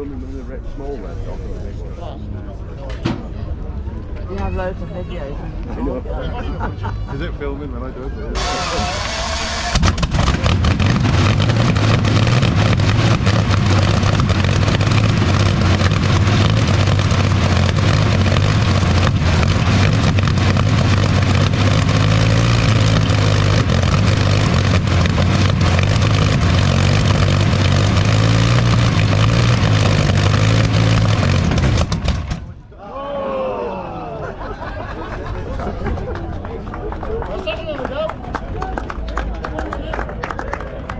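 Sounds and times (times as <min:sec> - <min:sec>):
engine running with deep hum: 0:08.4 - 0:32.6.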